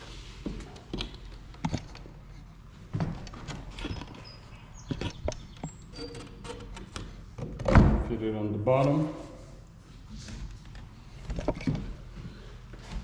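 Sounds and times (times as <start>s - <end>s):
faint high squeaks: 3.7s - 6.6s.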